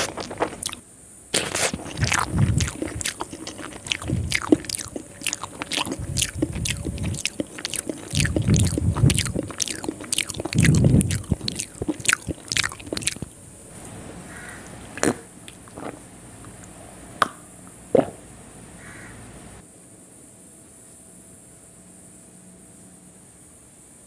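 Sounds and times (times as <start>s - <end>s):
wet chewing and lip smacks: 0.0s - 0.8s, 1.4s - 13.4s.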